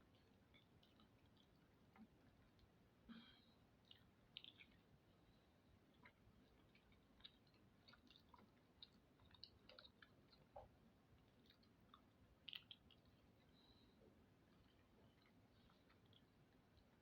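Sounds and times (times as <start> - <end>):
person chewing: 0.2 - 2.7, 5.9 - 13.8.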